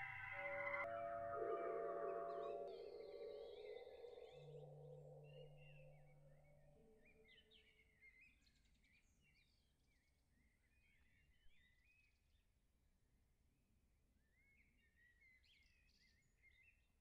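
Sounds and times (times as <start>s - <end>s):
low steady drone tone: 0.0s - 7.2s.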